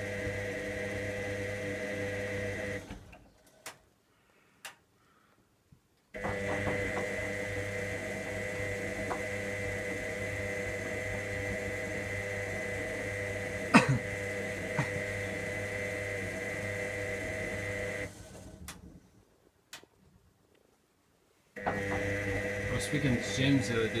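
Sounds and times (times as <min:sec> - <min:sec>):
washing machine motor humming: 0:00.0 - 0:03.2, 0:06.2 - 0:18.9, 0:21.6 - 0:24.0.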